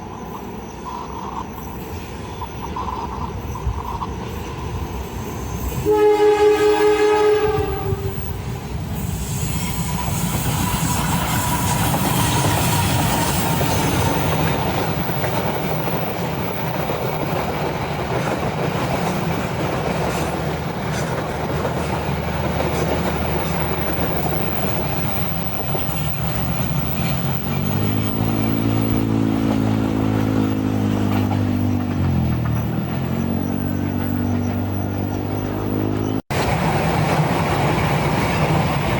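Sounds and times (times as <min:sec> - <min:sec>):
train rumbling and clattering past: 0:00.0 - 0:38.9
train horn blast: 0:05.8 - 0:08.4.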